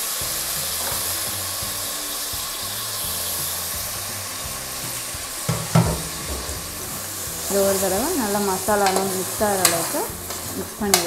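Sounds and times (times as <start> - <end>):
chicken sizzling in oil: 0.0 - 11.0
sharp knocks: 5.5 - 6.9.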